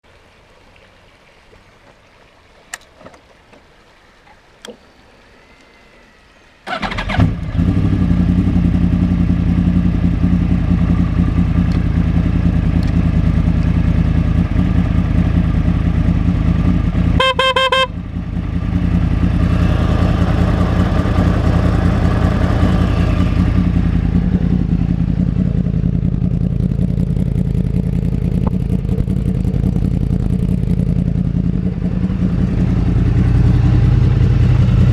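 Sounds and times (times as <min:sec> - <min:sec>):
faint clicks: 0:02.7 - 0:04.8
motorcycle engine idling: 0:08.0 - 0:34.9
beeping tone: 0:17.2 - 0:17.9.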